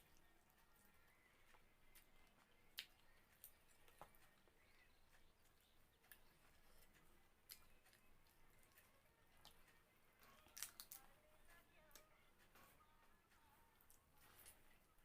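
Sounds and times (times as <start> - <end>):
soft chewing: 0.0 - 15.0.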